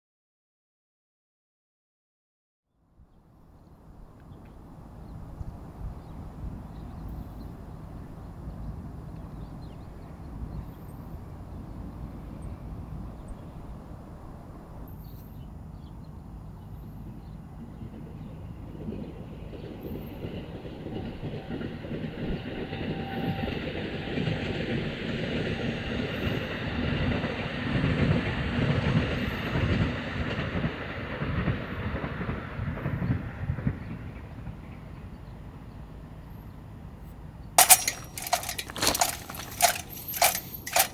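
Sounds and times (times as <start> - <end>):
train wheels rumbling and clacking: 37.6 - 40.9.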